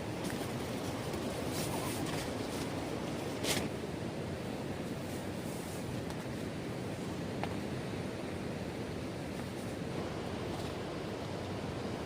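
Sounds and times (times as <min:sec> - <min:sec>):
sea surf: 0:00.0 - 0:12.0
wind: 0:00.0 - 0:12.0.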